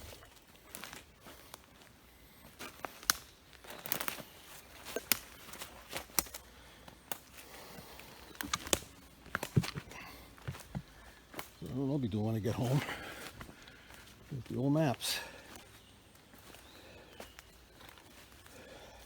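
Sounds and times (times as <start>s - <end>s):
footsteps on stony ground: 0.0s - 19.0s.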